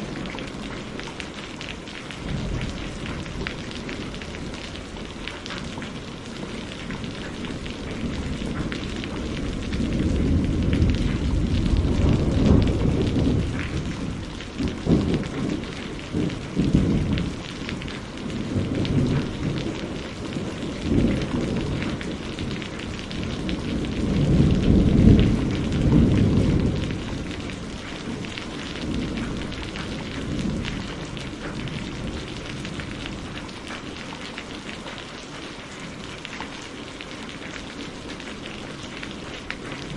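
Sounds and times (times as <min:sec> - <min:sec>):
steady rainfall: 0:00.0 - 0:39.9
rolling thunder: 0:02.2 - 0:33.4.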